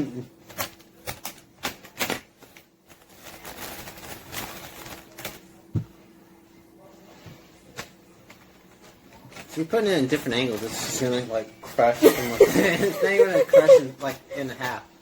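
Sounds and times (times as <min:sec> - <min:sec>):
rubbery rustling: 0:00.4 - 0:05.6, 0:08.3 - 0:13.8.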